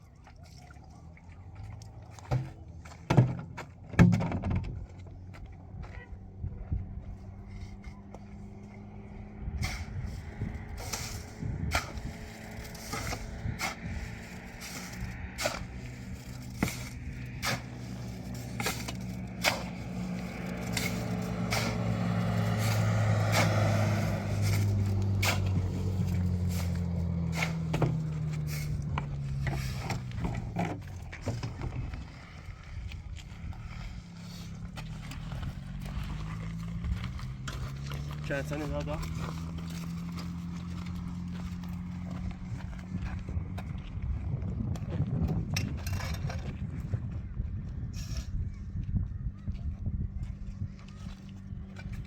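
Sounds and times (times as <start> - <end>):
vehicle engine passing: 5.3 - 45.3.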